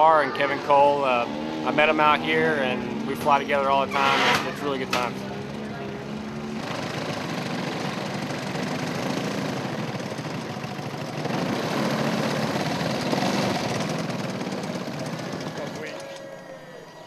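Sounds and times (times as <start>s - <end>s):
model airplane engine in flight: 4.0s - 16.6s.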